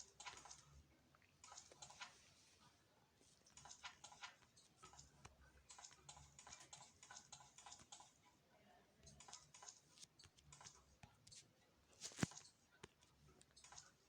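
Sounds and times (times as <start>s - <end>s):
faint irregular tapping and clicking: 3.2s - 8.4s, 9.0s - 14.0s.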